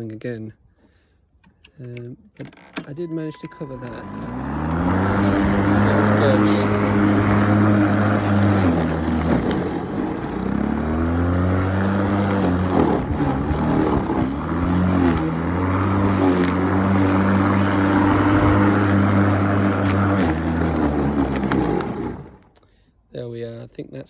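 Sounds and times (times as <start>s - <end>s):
electric lawnmower cutting grass: 3.7s - 22.5s.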